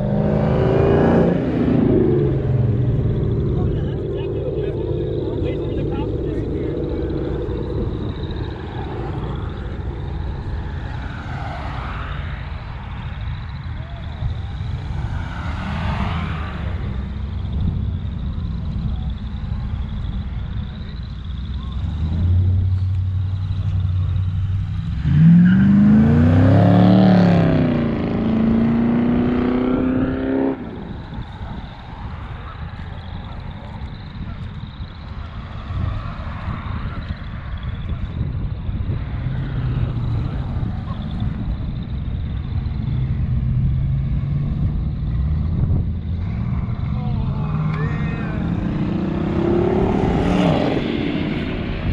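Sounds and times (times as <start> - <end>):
car engine accelerating: 0.0 - 51.9.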